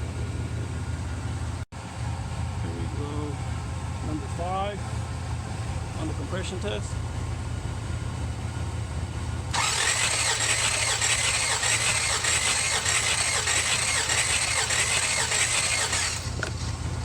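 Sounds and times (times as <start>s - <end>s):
starter motor cranking engine: 9.5s - 16.9s.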